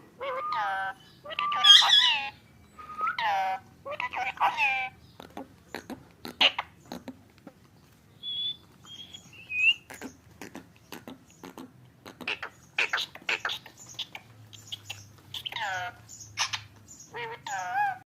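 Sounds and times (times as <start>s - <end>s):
parakeet clicking and chattering: 3.8s - 18.0s
parakeet whistled chirps: 8.2s - 9.8s.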